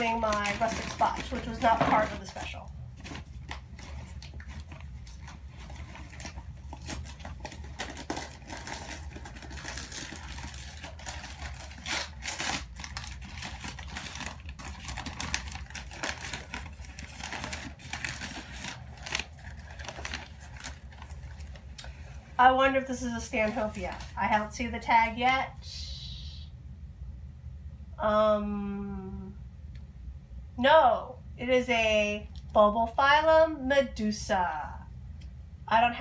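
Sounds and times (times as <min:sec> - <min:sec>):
packing material crinkling and tearing: 0:00.0 - 0:22.3, 0:23.2 - 0:24.5.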